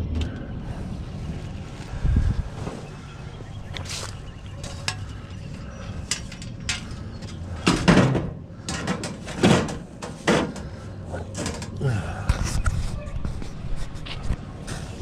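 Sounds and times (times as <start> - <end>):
vehicle engine rumble: 0.0 - 15.0
metal scrap clanking: 6.0 - 10.7.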